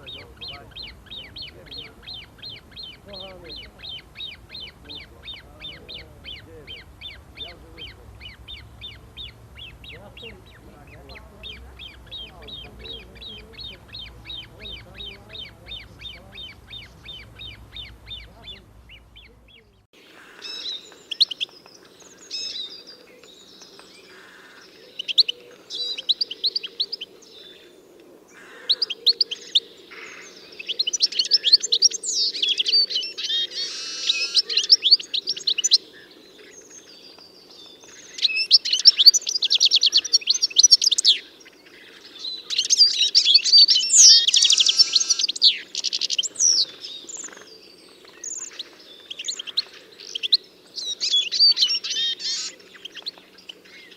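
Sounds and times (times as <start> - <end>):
faint low hum: 0.0 - 19.9
songbird chirps and trills: 0.0 - 53.9.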